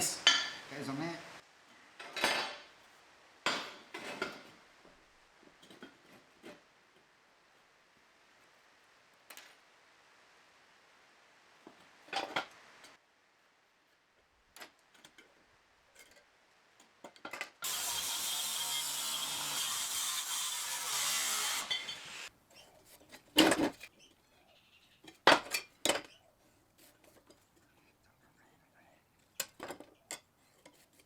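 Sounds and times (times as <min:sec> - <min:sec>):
metalworking tool hissing: 0:17.6 - 0:22.3.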